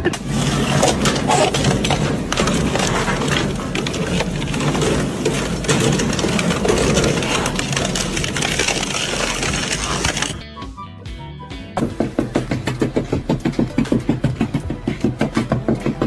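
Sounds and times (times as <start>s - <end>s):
machine humming and clattering: 0.0s - 10.4s.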